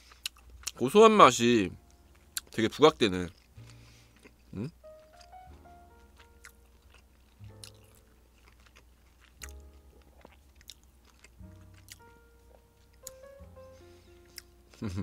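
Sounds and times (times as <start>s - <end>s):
man chewing food: 0.0s - 0.8s, 1.8s - 2.6s, 3.2s - 15.0s
quiet background music: 0.4s - 15.0s.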